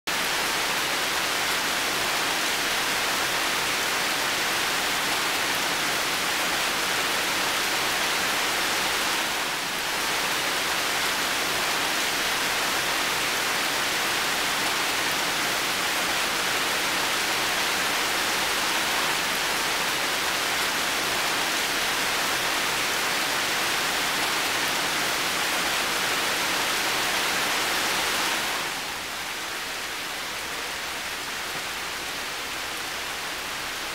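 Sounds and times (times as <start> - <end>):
heavy rain on a metal roof: 0.0 - 33.9.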